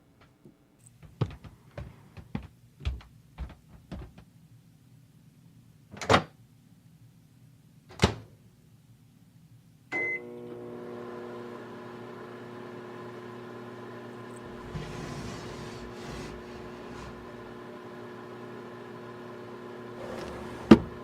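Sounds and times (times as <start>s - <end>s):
microwave oven humming: 9.9s - 21.0s.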